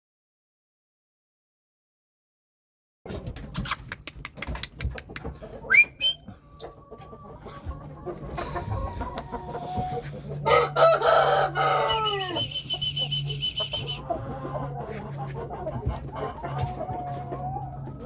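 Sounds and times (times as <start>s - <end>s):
chickens clucking: 3.1s - 18.0s
rooster crowing: 8.7s - 14.0s
high pulsed whistle: 11.8s - 14.0s.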